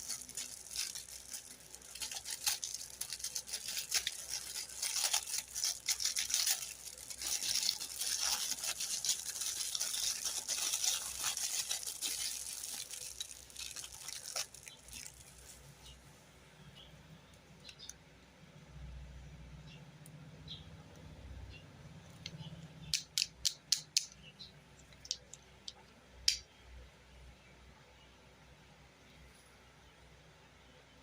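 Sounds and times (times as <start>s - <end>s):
plastic toy crackling and clicking: 0.0s - 15.5s, 22.2s - 24.2s, 24.8s - 26.4s.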